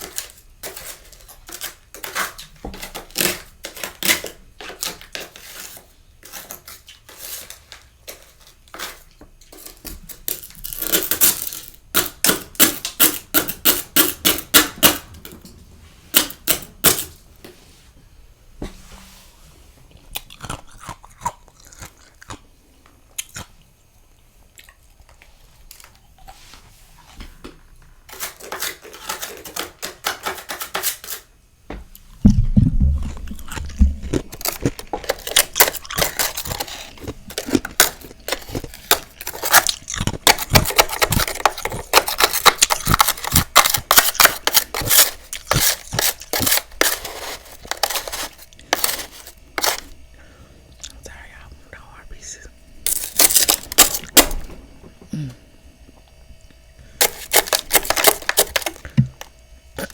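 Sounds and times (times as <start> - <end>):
crunchy chewing: 19.9 - 26.4, 32.8 - 52.0, 52.8 - 54.4
frost crackling: 32.0 - 50.0.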